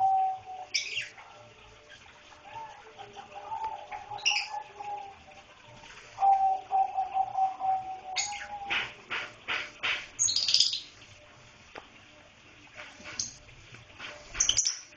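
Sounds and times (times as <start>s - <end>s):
lovebird high chirps: 0.0s - 1.1s.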